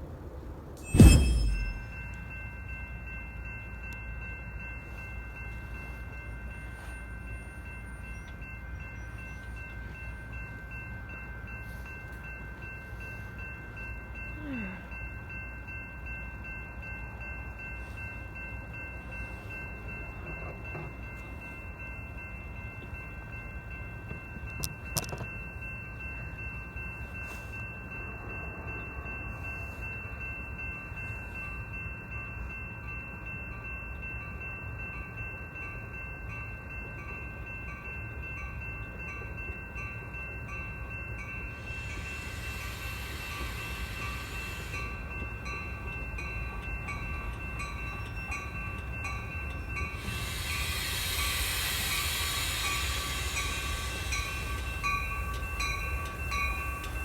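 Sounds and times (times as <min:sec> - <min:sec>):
train rumbling: 0:00.0 - 0:57.0
bell ringing: 0:00.8 - 0:05.6
high hiss: 0:41.6 - 0:45.1, 0:49.9 - 0:57.0.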